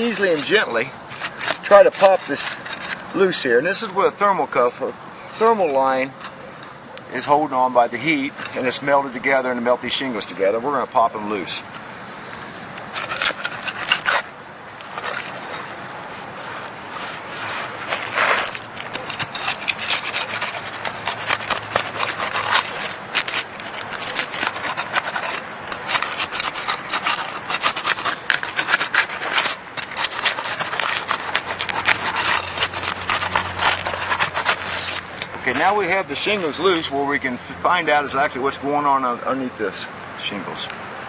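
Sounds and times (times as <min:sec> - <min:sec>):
shingles tearing loose: 0:00.0 - 0:03.2, 0:12.8 - 0:36.8
bar scraping under shingles: 0:00.0 - 0:11.5, 0:12.8 - 0:38.3.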